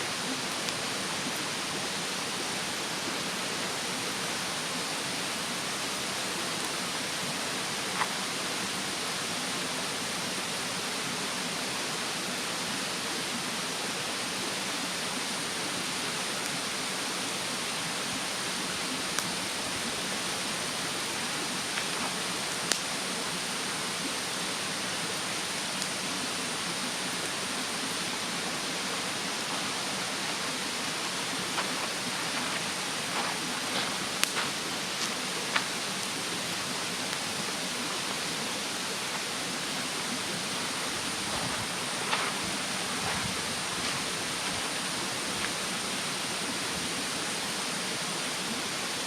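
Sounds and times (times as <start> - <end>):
mountain stream rushing: 0.0 - 49.0
wood fire crackles: 2.2 - 9.2, 17.8 - 46.8.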